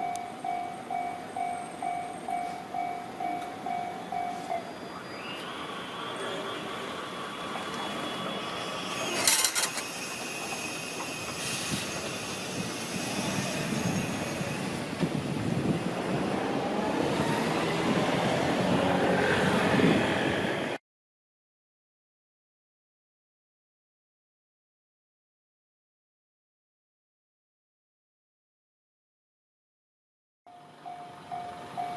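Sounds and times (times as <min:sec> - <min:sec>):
wheel squeal: 0:07.7 - 0:14.8
freight train rumbling and clattering: 0:09.0 - 0:20.8.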